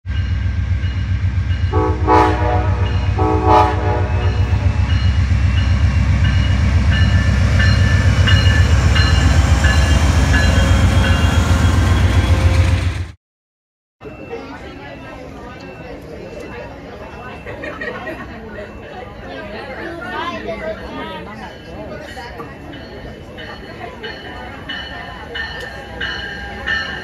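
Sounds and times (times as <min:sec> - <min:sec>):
diesel locomotive engine rumble: 0:00.1 - 0:13.2
train chord horn blasts: 0:01.7 - 0:05.0.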